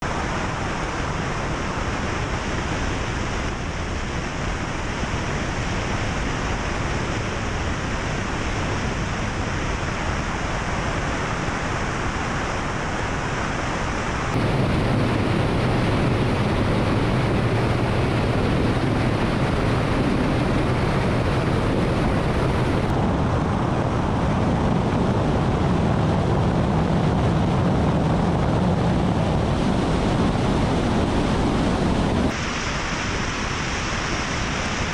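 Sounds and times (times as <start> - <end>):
helicopter engines and rotor: 12.1 - 32.4.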